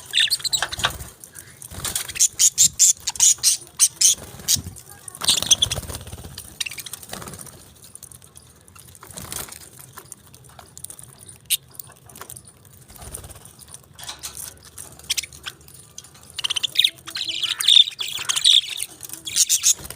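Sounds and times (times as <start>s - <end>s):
budgerigars chirping: 0.0s - 6.0s, 6.6s - 7.0s, 15.0s - 19.9s.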